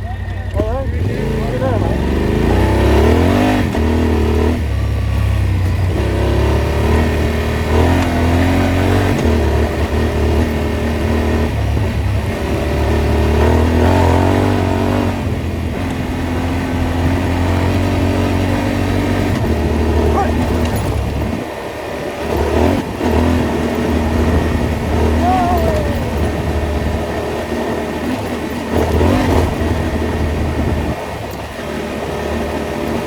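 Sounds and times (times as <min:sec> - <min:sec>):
off-road vehicle engine revving: 0:00.0 - 0:33.0.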